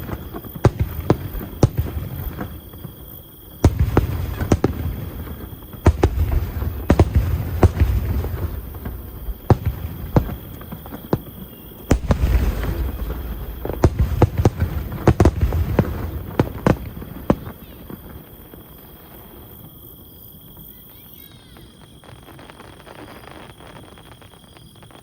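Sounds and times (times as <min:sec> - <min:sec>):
fireworks bangs: 0:00.0 - 0:25.0
deep rumbling booms: 0:11.9 - 0:17.4.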